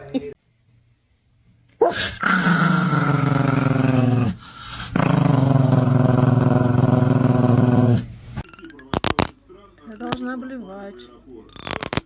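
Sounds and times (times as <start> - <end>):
pet growling: 1.8 - 8.1.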